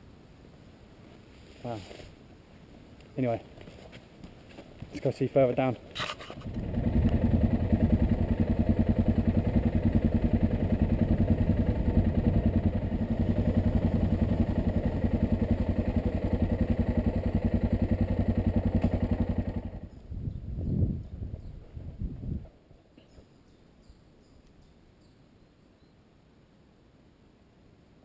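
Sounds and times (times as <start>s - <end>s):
motorcycle engine running: 6.2s - 20.4s.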